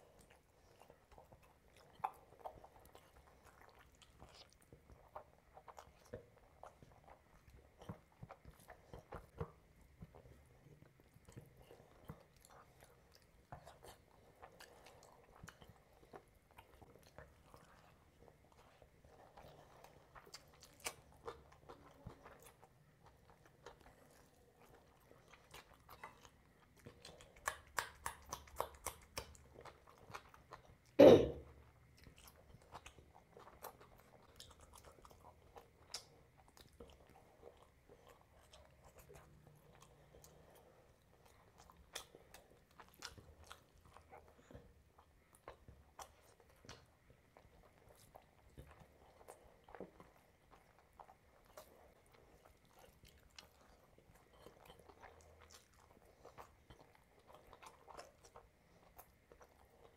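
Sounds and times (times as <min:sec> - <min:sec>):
chewing and crunching: 0:00.0 - 0:59.9.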